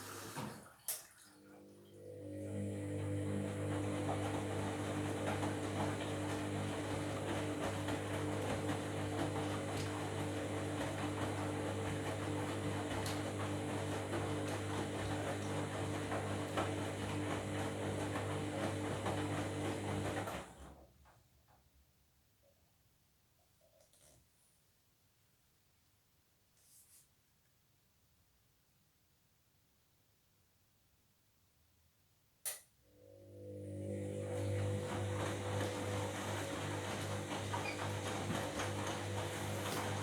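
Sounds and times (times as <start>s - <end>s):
washing machine humming: 0.0s - 20.8s, 32.9s - 40.0s.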